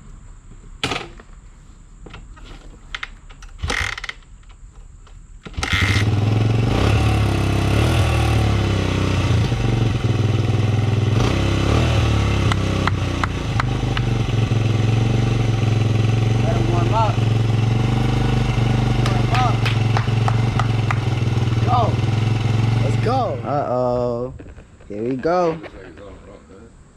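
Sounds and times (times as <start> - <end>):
dirt bike engine starting: 3.5 - 4.2, 5.4 - 24.2.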